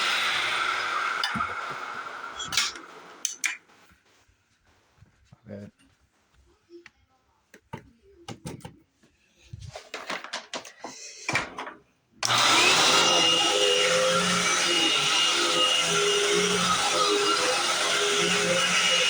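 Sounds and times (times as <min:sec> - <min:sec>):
vacuum cleaner motor whining: 0:00.0 - 0:03.2, 0:12.2 - 0:19.0.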